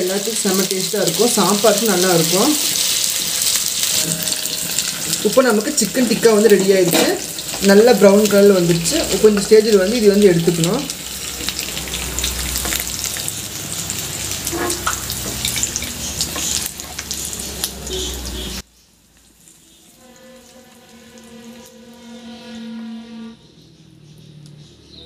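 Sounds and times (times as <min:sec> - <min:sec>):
chicken sizzling in hot oil: 0:00.0 - 0:21.7
wooden spatula scraping and tapping: 0:14.5 - 0:17.2.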